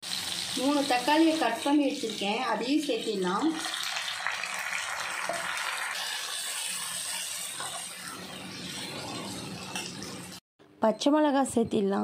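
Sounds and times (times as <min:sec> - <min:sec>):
vegetables sizzling in oil: 0:00.0 - 0:10.4.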